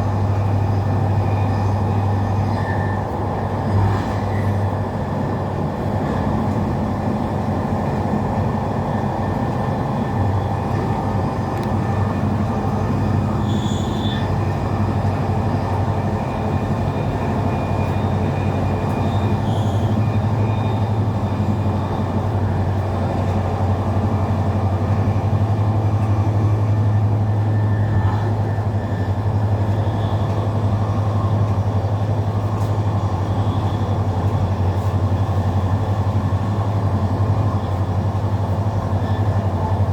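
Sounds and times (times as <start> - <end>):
faint high squeaks: 13.4 - 14.3.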